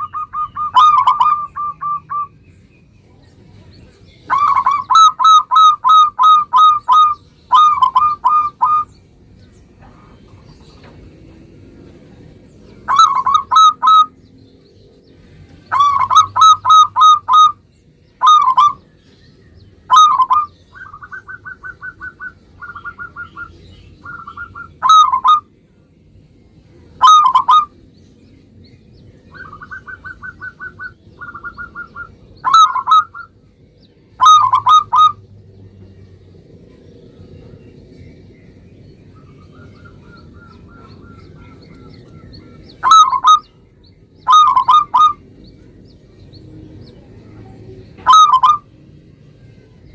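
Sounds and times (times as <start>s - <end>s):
dove cooing: 0.0s - 2.3s, 4.3s - 8.9s, 12.8s - 14.2s, 15.7s - 17.6s, 18.2s - 18.8s, 19.9s - 25.5s, 27.0s - 27.8s, 29.3s - 33.3s, 34.2s - 35.2s, 39.2s - 43.6s, 44.2s - 45.3s, 48.0s - 48.7s.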